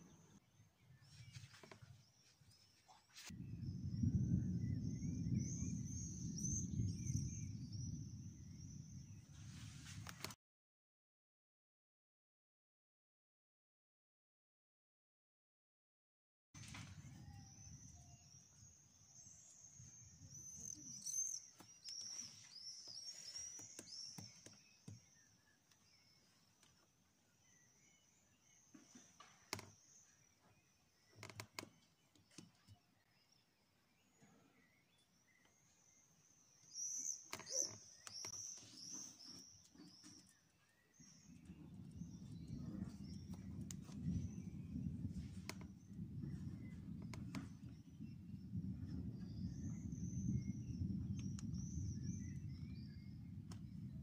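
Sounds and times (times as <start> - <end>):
faint low rumble: 2.8 - 10.2, 41.0 - 54.0
birds calling and chirping: 16.6 - 53.9.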